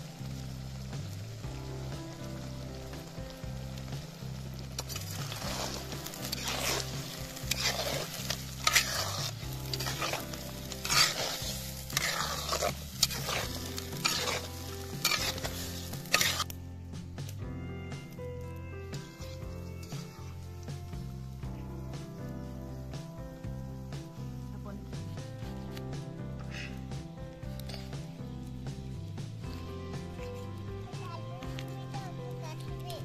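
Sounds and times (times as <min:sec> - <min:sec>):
meat sizzling in oil: 0:00.0 - 0:17.4, 0:18.1 - 0:24.4
soft background music: 0:00.0 - 0:33.0
metal spatula scraping pot: 0:04.8 - 0:16.6.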